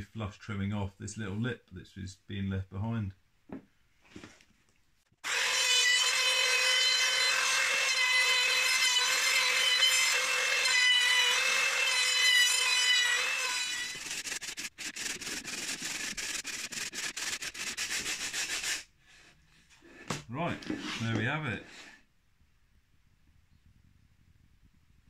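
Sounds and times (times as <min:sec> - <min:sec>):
router whining: 0:05.2 - 0:18.8.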